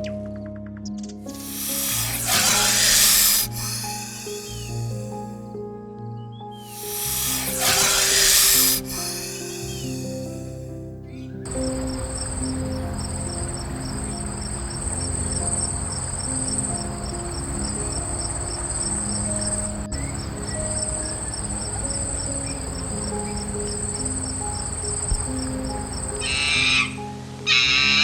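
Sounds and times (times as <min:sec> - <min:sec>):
soft music with low notes: 0:00.0 - 0:28.0
insects chirping: 0:01.3 - 0:05.4, 0:06.7 - 0:27.0
loud animal call: 0:26.2 - 0:28.0.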